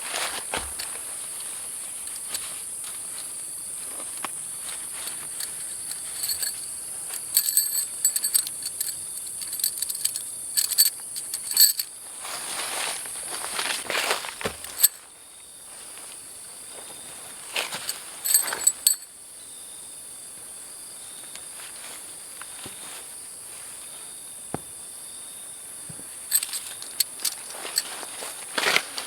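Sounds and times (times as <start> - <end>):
insect chorus: 0.0 - 29.0
rustling and clicks: 0.2 - 11.9, 13.3 - 15.0, 17.6 - 19.0, 26.3 - 29.0.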